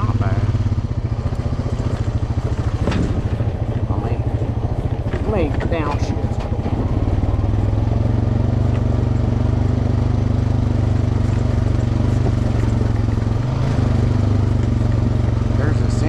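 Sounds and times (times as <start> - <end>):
vehicle engine running in low gear: 0.0 - 16.0.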